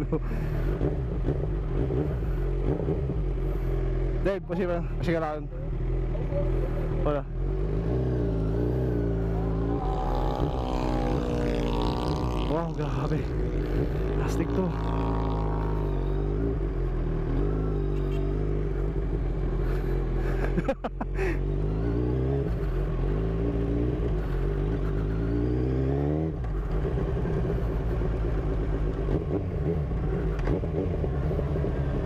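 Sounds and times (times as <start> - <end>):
motorcycle engine accelerating: 0.0 - 32.0.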